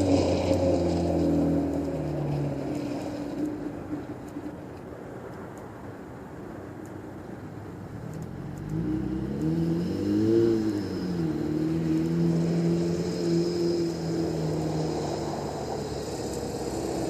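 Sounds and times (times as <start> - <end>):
truck engine revving: 0.0 - 3.5, 8.6 - 17.0.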